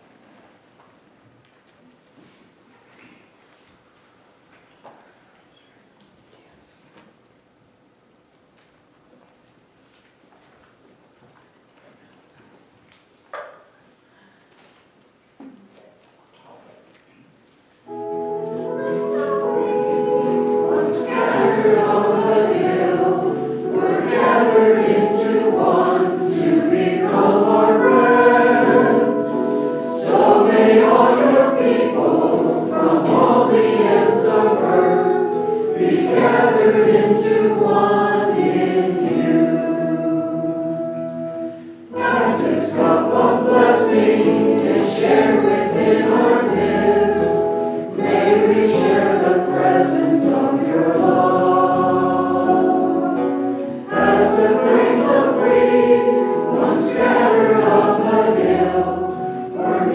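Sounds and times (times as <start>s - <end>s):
choir singing: 17.9s - 59.9s.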